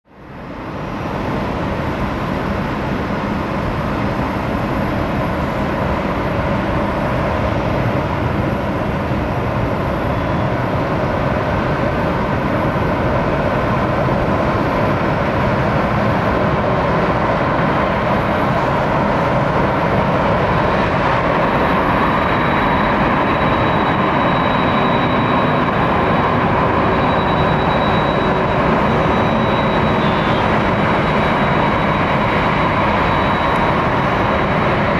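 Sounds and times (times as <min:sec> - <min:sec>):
jet engines roaring at idle: 0:00.1 - 0:34.9
faint high whine: 0:08.4 - 0:13.0, 0:16.7 - 0:34.9.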